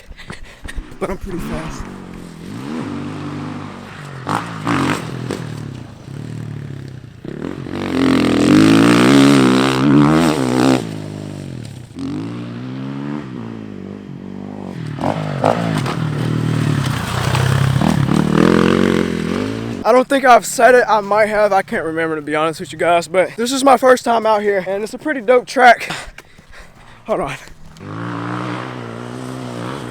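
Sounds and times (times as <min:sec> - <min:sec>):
dirt bike engine revving: 0:00.0 - 0:20.8, 0:27.0 - 0:29.9.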